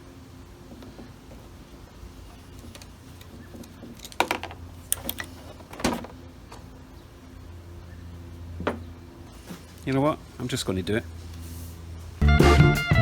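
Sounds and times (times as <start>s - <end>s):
steady low hum: 0.0s - 12.4s
metal parts clicking and knocking: 2.5s - 6.6s.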